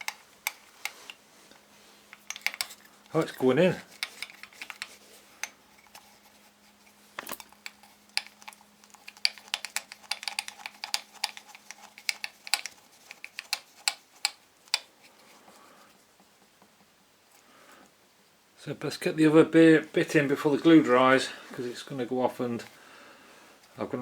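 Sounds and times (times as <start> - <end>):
metal parts and tools clicking: 0.0 - 1.2, 2.1 - 6.0, 7.2 - 14.9
faint steady hum: 0.0 - 24.0.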